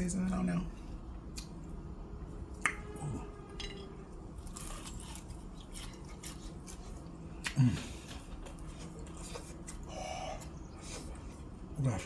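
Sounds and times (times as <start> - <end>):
crunches of eating chicken: 0.9 - 12.0.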